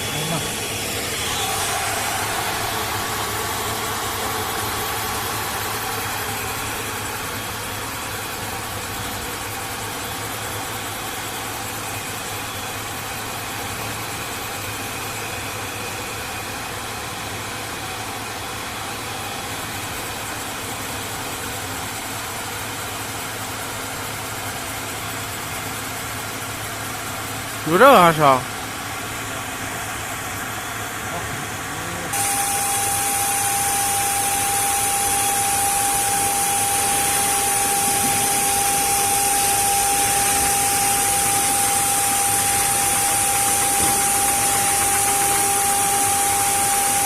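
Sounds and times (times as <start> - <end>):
router spindle whining: 0.0 - 9.3, 32.0 - 47.0.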